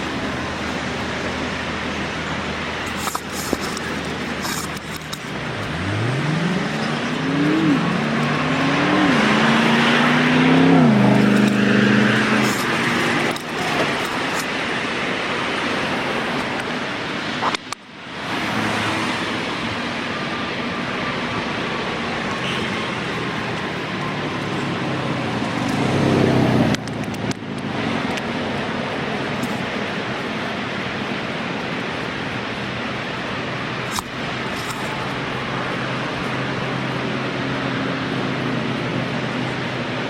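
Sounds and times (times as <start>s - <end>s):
car engine accelerating: 0.0s - 14.8s, 18.2s - 31.0s
road and tyre noise: 0.0s - 40.0s.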